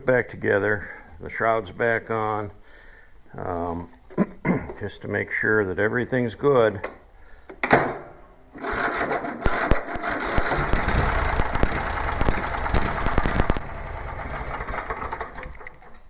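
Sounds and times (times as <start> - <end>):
engine turning over rattling: 8.6 - 16.0.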